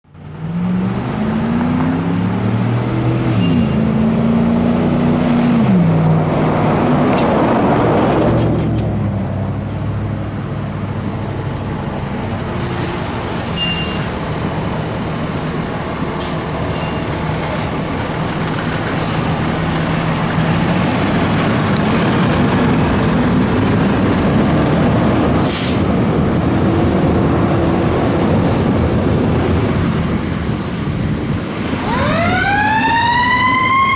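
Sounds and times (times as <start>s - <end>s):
fire engine diesel engine: 0.0s - 33.9s
hiss of air: 25.4s - 26.2s.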